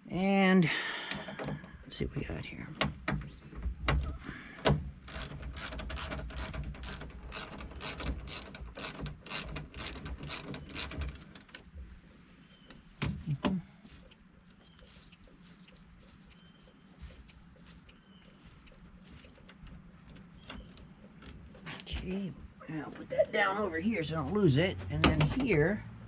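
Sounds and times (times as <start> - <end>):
knocks: 2.8 - 11.2
ratchet wrench clicking: 5.0 - 11.5.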